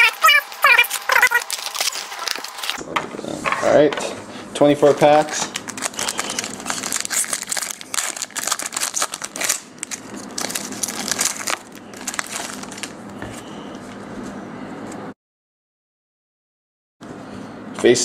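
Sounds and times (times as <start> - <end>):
card pack wrappers crinkling: 0.0 - 2.8, 4.9 - 13.2.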